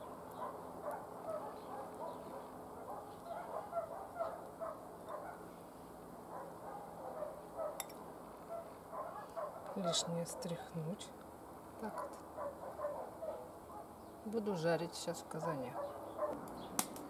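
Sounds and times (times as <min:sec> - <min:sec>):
birds chirping: 0:00.0 - 0:17.0
faint low hum: 0:00.0 - 0:17.0.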